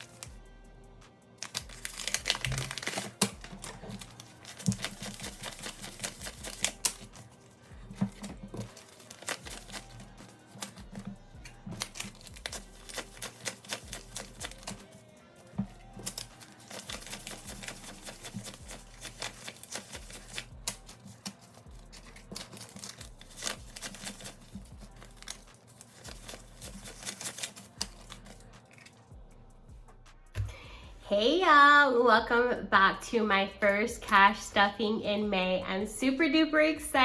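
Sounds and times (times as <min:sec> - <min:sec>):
banknotes flicking and rustling: 0:00.0 - 0:00.3, 0:01.4 - 0:15.0, 0:16.0 - 0:29.1
soft background music: 0:00.0 - 0:37.0.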